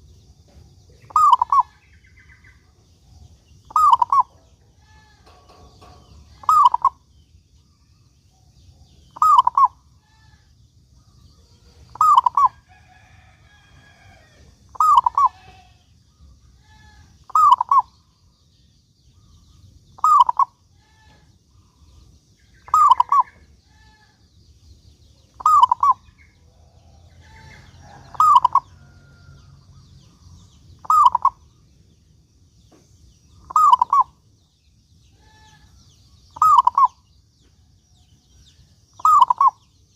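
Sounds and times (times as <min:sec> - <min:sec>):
dove cooing: 0:01.0 - 0:01.8, 0:03.7 - 0:07.0, 0:09.2 - 0:10.3, 0:11.7 - 0:12.6, 0:14.7 - 0:15.6, 0:16.6 - 0:17.9, 0:20.0 - 0:20.5, 0:22.7 - 0:24.0, 0:25.4 - 0:26.0, 0:27.2 - 0:29.1, 0:30.8 - 0:31.4, 0:33.5 - 0:34.2, 0:36.4 - 0:37.0, 0:39.0 - 0:39.6.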